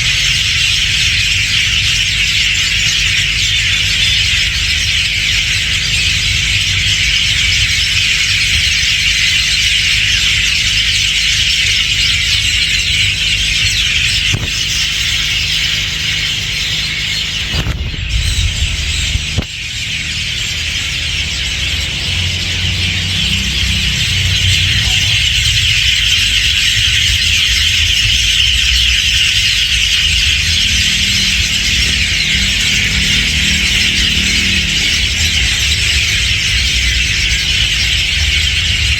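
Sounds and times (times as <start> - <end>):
chorus of birds calling: 0.0 - 38.9
low rumble: 16.6 - 38.9.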